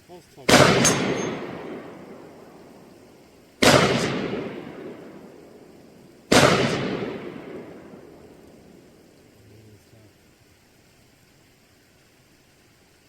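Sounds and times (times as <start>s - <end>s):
gunshots with echo: 0.5s - 2.4s, 3.6s - 5.4s, 6.3s - 8.1s.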